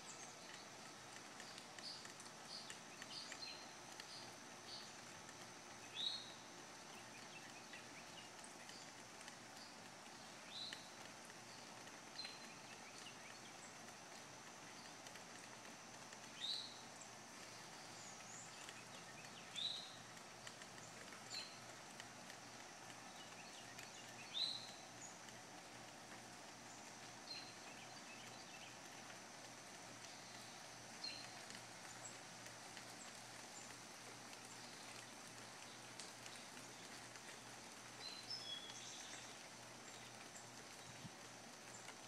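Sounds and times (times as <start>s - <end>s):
faint outdoor hiss: 0.0s - 42.0s
bird chirping: 5.8s - 13.9s, 16.2s - 21.7s, 22.4s - 25.3s, 26.6s - 29.1s, 34.4s - 41.1s.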